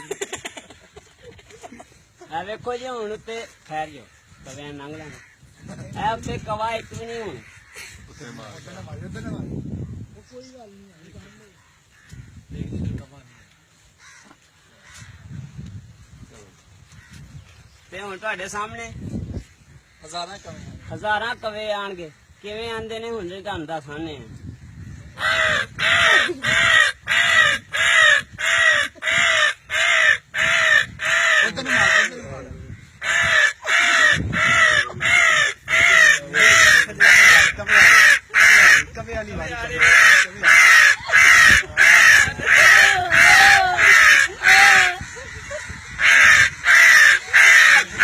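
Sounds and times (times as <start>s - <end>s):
man imitating crow caws: 24.8s - 48.0s.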